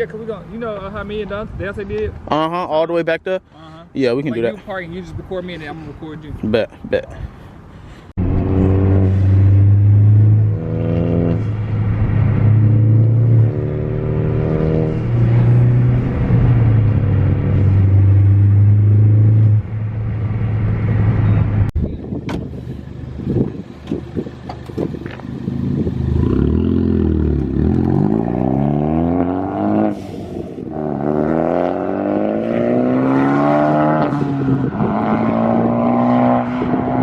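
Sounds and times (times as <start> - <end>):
car accelerating through gears: 8.2 - 19.6, 25.6 - 37.0.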